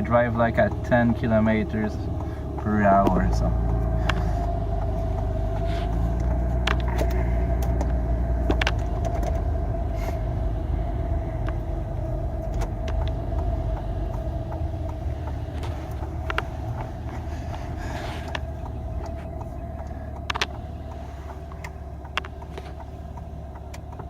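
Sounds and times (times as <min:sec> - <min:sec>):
light clicks and knocks: 0:00.0 - 0:09.8, 0:11.3 - 0:24.0
car engine and road rumble: 0:00.0 - 0:24.0.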